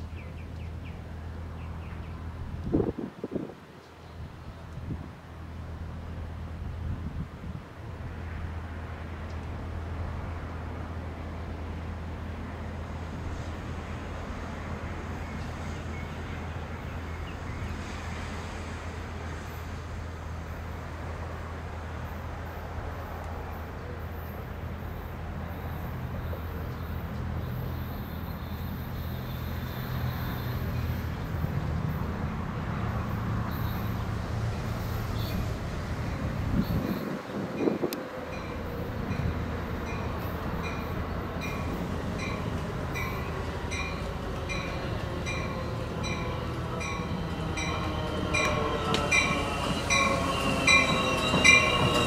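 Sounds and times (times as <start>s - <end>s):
approaching train rumble: 0.0s - 52.0s.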